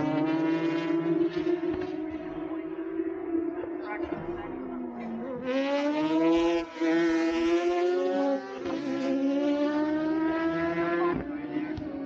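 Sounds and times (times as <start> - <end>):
superbike engines at high revs: 0.0 - 12.0.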